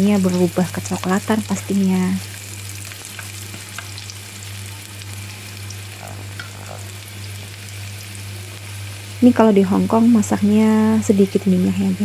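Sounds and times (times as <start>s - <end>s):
garlic sizzling in oil: 0.0s - 12.0s
chopsticks stirring in wok: 5.8s - 7.0s.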